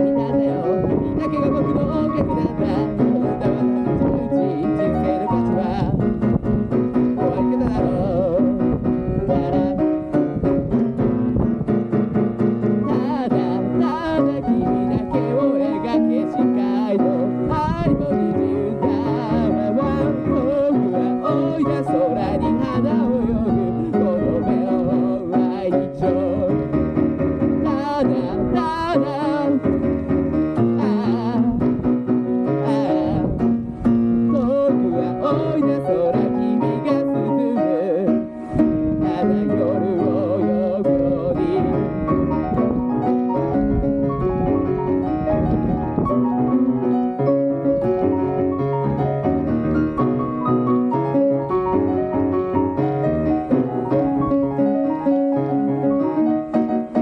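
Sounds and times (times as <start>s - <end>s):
person singing: 0.0s - 6.2s, 6.9s - 10.4s, 12.8s - 27.0s, 27.6s - 42.7s.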